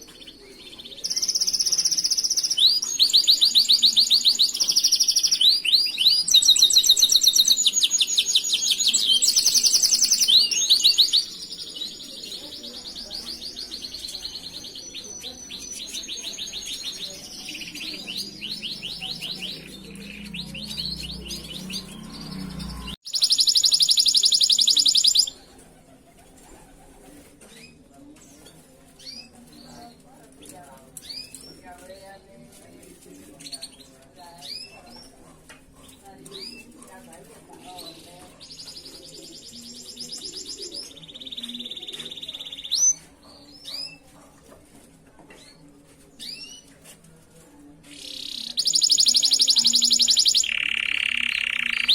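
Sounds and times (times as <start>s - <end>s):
canary singing trills: 0.0s - 25.5s, 37.6s - 44.1s, 47.8s - 51.9s.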